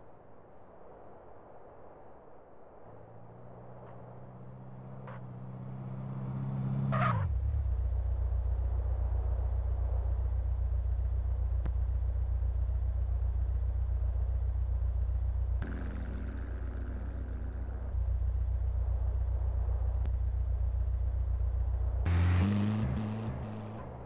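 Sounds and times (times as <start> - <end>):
car rumbling in motion: 2.8 - 24.0.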